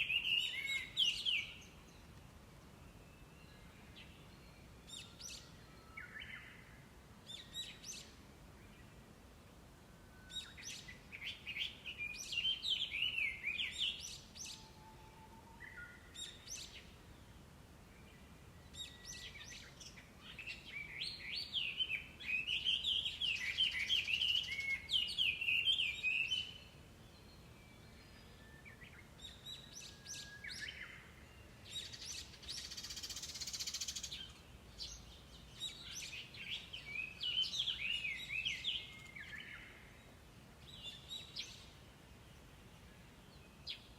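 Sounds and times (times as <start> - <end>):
bird singing whistled phrases: 0.0 - 1.6, 28.0 - 31.1.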